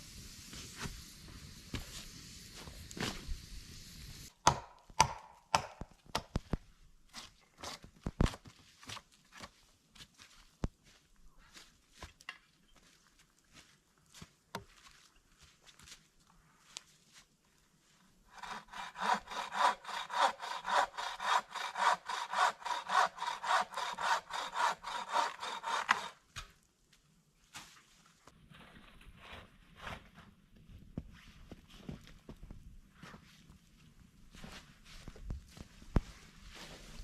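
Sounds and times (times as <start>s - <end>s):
hand saw cutting wood: 18.3s - 26.2s.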